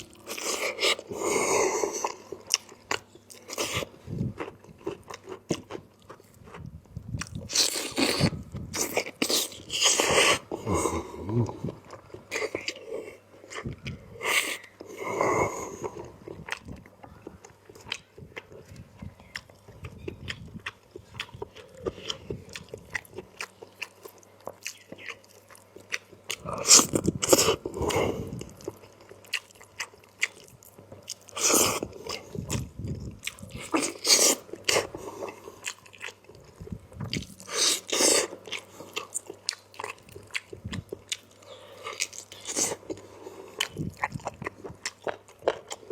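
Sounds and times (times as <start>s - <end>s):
chewing and lip-smacking: 11.4s - 15.0s, 15.6s - 45.9s.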